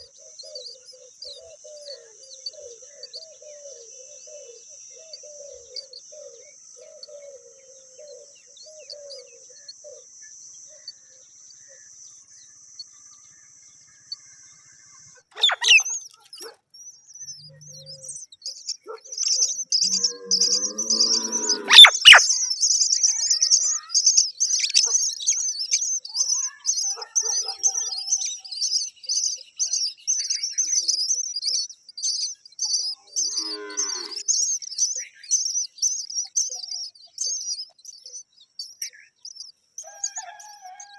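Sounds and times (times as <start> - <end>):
bird chicks chirping shrilly: 15.3 - 40.9.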